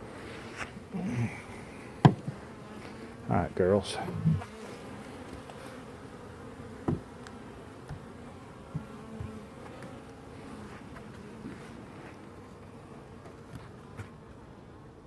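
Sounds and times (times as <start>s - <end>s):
honeybees buzzing: 0.0s - 15.0s
light knocks: 6.8s - 8.0s.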